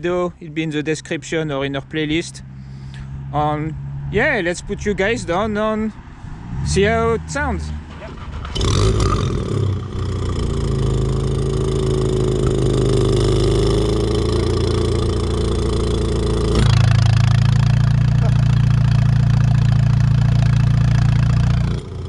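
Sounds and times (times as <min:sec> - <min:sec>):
car engine starting: 0:06.6 - 0:22.0
car engine idling: 0:13.7 - 0:22.0.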